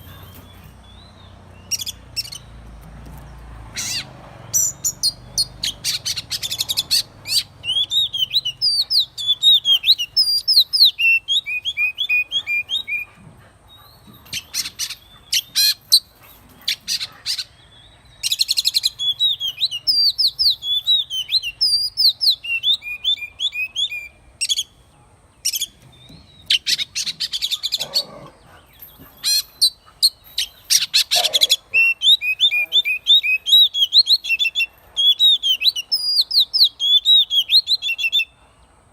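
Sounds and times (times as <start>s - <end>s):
bird whistled song: 0.0s - 2.5s, 3.8s - 13.1s, 16.7s - 24.8s, 28.7s - 38.4s.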